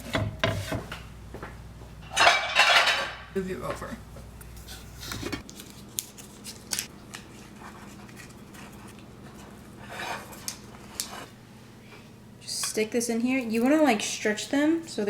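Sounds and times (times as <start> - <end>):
scraping and rustling: 4.5 - 5.4.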